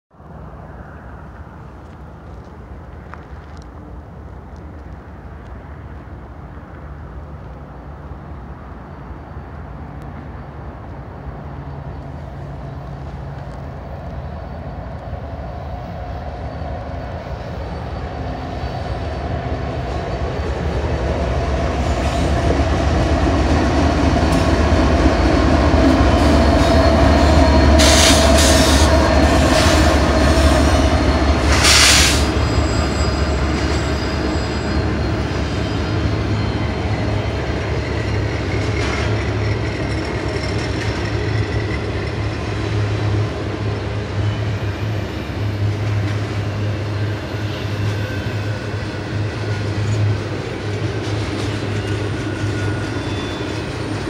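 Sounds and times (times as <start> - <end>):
diesel locomotive engines: 0.2 - 54.0
steel wheels squealing and clattering: 16.1 - 54.0.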